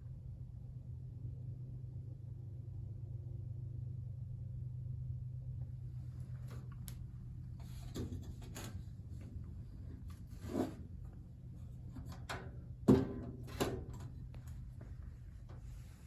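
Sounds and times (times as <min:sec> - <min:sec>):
steady low hum: 0:00.0 - 0:16.0
fan cabinet rubbing and knocking: 0:07.6 - 0:16.0.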